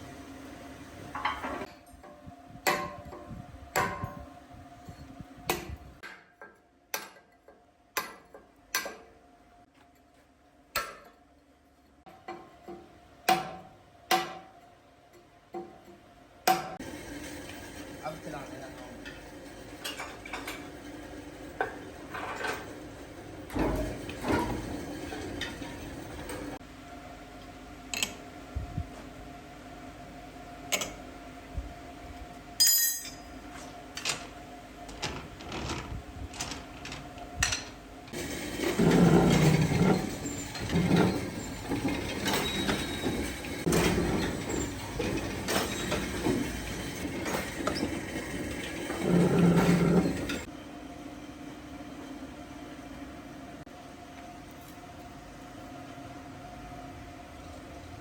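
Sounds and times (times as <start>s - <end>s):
pulsing machine running sound: 16.8s - 26.6s, 38.1s - 50.5s.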